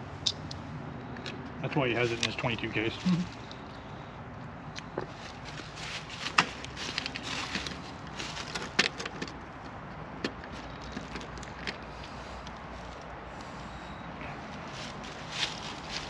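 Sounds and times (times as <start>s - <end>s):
handling clicks and knocks: 6.2s - 13.1s.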